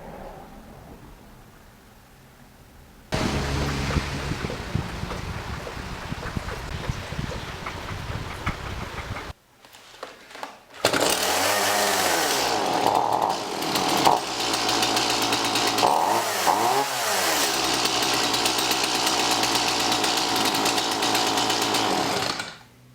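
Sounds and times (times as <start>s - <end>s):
chainsaw engine revving: 3.2s - 5.2s, 10.8s - 22.7s.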